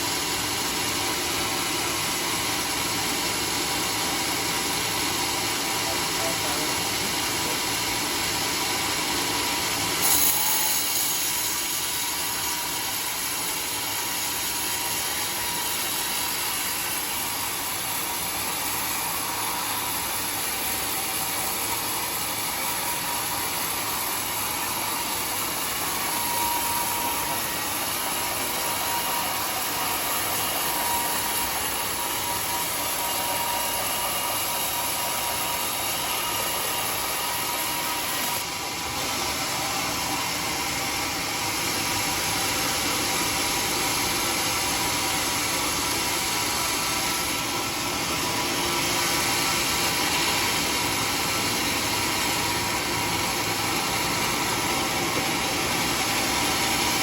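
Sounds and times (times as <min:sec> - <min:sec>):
saw blade hissing through wood: 0:09.8 - 0:40.0.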